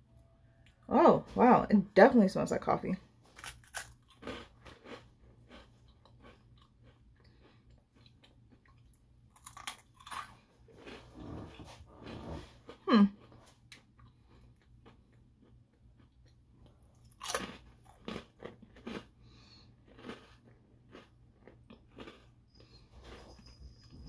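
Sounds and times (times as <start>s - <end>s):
biscuit crunching: 3.3s - 11.2s, 12.6s - 22.4s.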